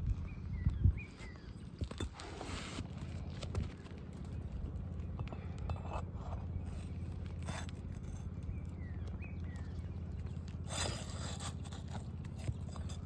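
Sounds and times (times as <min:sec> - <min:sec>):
steady low hum: 0:00.0 - 0:13.0
scrapes on a shingle roof: 0:01.9 - 0:03.9, 0:10.2 - 0:13.0.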